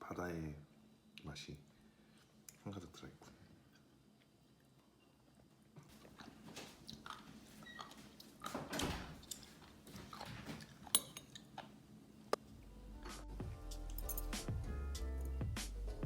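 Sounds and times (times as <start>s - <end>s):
close-up chewing: 3.6s - 8.5s, 9.2s - 11.8s.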